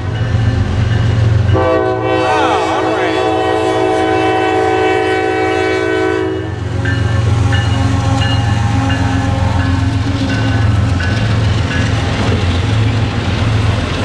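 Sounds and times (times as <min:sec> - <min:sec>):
locomotive air horn: 0:01.5 - 0:09.8
locomotives rumbling: 0:06.5 - 0:14.0.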